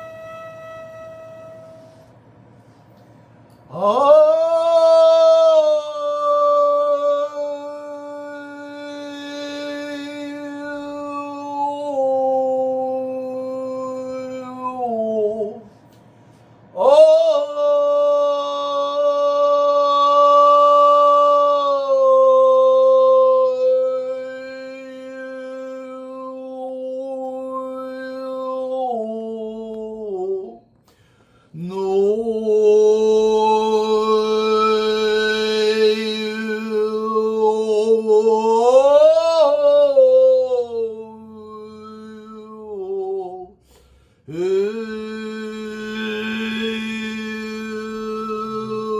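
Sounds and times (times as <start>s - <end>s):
stone flute long low notes: 0.0s - 2.4s.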